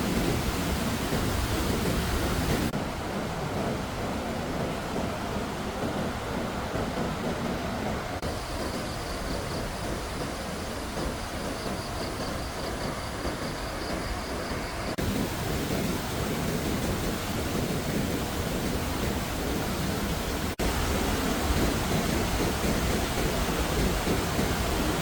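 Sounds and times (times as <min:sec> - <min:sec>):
water rushing: 0:00.0 - 0:11.4, 0:14.8 - 0:25.0.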